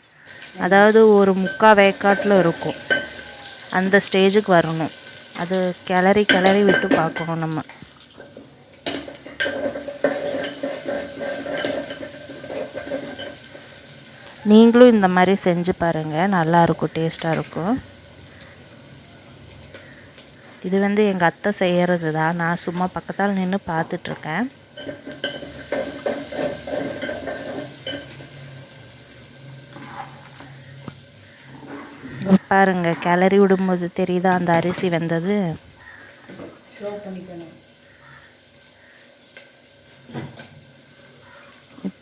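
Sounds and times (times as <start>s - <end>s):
rice bubbling: 0.0s - 42.0s
metal spoon scraping pot: 1.4s - 3.2s, 9.0s - 13.8s, 24.8s - 28.4s, 29.7s - 30.8s, 31.5s - 33.4s.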